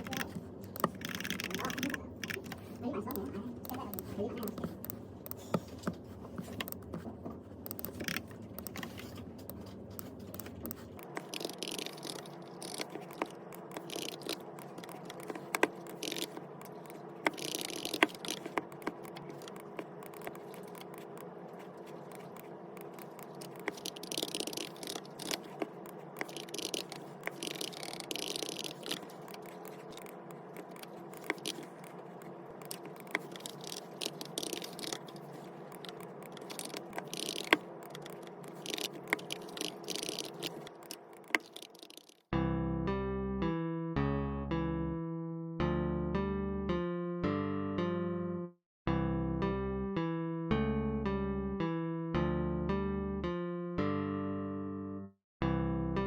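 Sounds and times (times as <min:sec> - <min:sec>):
objects rustling and scraping: 0:04.6 - 0:42.2.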